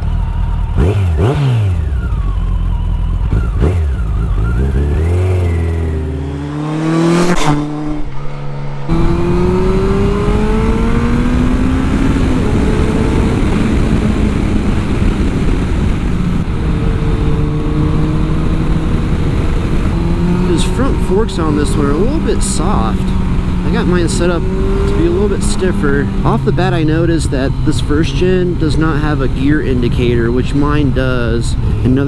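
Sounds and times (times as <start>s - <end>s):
motorcycle engine accelerating: 0.0s - 32.0s
wind noise: 8.9s - 32.0s.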